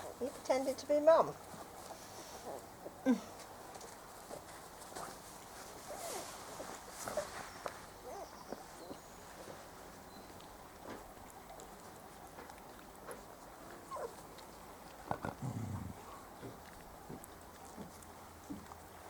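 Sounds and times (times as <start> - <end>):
puppies squeaking and whimpering: 13.9 - 14.2.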